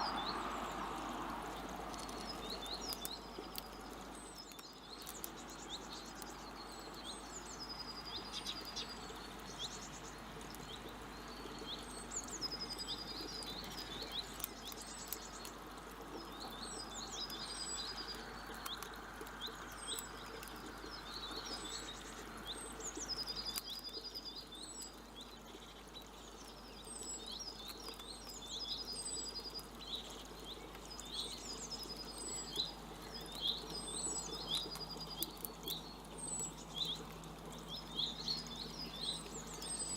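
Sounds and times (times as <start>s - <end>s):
background hum: 0.0s - 39.9s
songbird song with trill: 0.0s - 39.9s.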